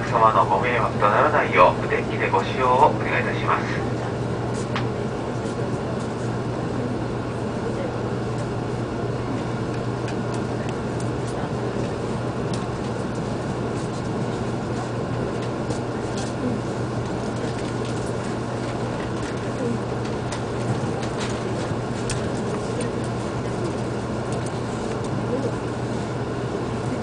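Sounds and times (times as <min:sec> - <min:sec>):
train cabin hum: 0:00.0 - 0:27.0.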